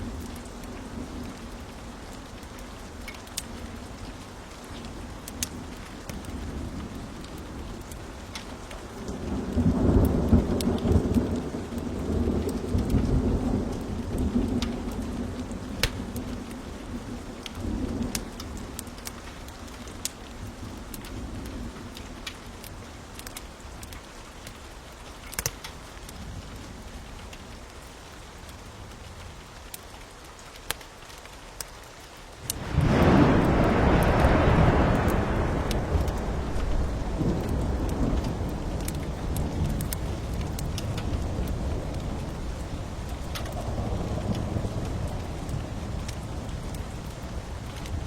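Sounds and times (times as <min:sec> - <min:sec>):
steady rain: 0:00.0 - 0:48.0
wood fire crackling: 0:00.0 - 0:48.0
thunder rumbling: 0:05.6 - 0:18.8, 0:32.4 - 0:48.0
wood fire popping: 0:32.4 - 0:48.0.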